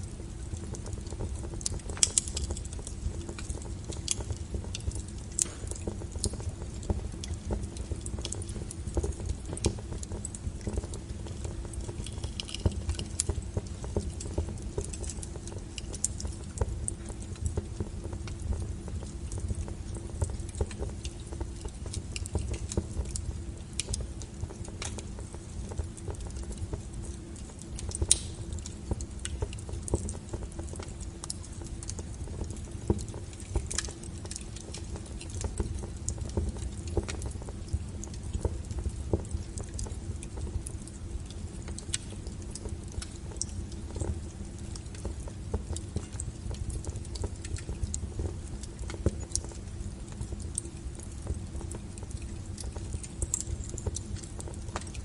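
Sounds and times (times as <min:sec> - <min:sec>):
wood fire crackling: 0:00.0 - 0:55.0
sharp pops of fire: 0:00.4 - 0:15.0, 0:27.6 - 0:31.4.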